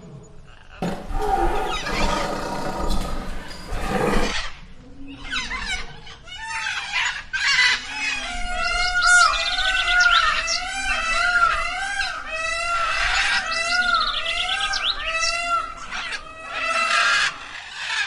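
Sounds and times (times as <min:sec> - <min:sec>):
harsh hoarse animal calls: 0:00.6 - 0:04.6.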